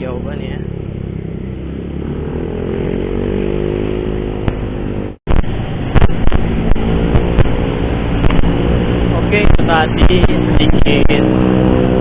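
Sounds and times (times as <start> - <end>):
motorcycle engine accelerating: 0.0 - 12.0
wind noise: 2.4 - 12.0.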